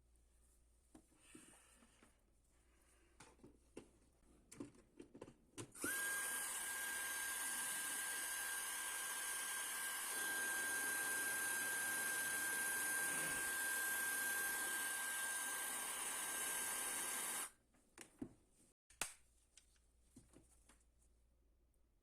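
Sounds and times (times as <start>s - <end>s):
hair dryer running: 5.8s - 17.5s.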